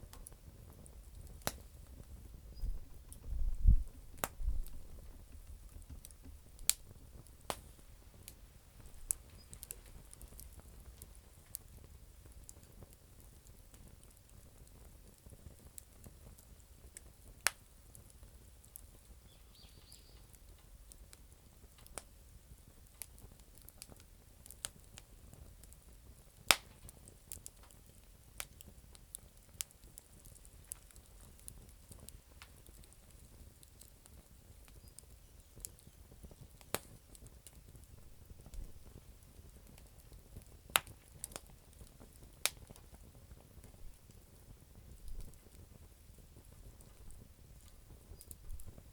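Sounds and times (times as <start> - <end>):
campfire crackling and popping: 0.0 - 48.9
faint low rumble: 2.0 - 10.2.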